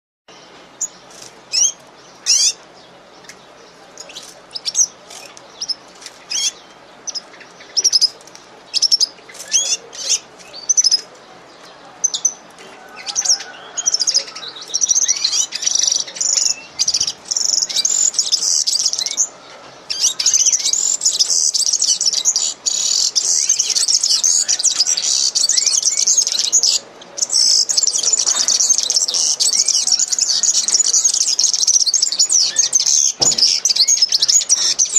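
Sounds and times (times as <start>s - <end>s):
small birds chirping: 0.3s - 34.9s.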